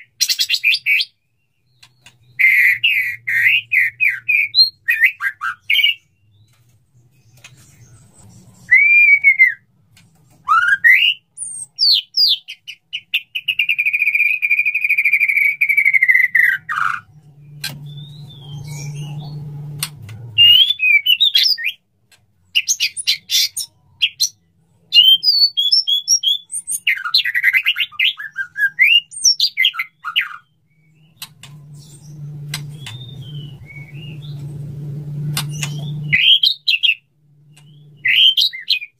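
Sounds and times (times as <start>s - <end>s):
bird whistled song: 0.0s - 6.6s, 7.2s - 9.7s, 10.4s - 19.8s, 20.4s - 21.8s, 22.5s - 34.6s, 35.2s - 38.9s
rapid bird chipping notes: 0.0s - 24.4s, 25.0s - 38.9s
low hum: 31.1s - 36.2s.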